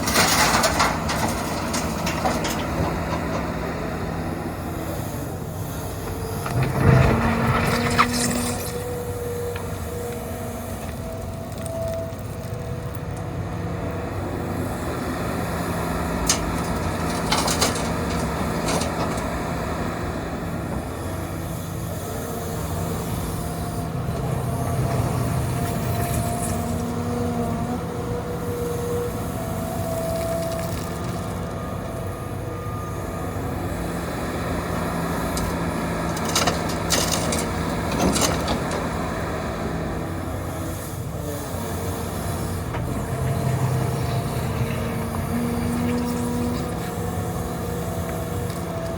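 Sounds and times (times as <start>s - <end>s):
bucket clanking on gravel: 0.0s - 3.5s, 35.2s - 38.8s
hydraulic whine: 0.0s - 13.2s, 13.9s - 48.9s
diesel engine running under load: 0.0s - 48.9s.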